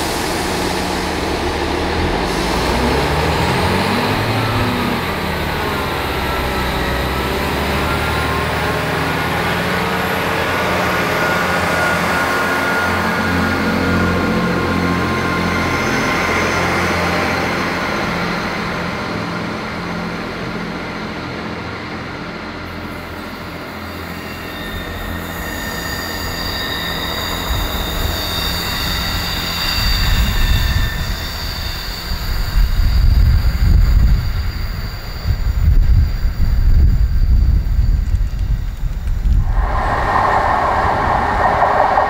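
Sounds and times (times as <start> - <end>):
train wheels squealing: 0.0 - 20.8, 22.5 - 42.0
wind buffeting microphone: 36.8 - 42.0
train diesel engine running: 39.4 - 42.0.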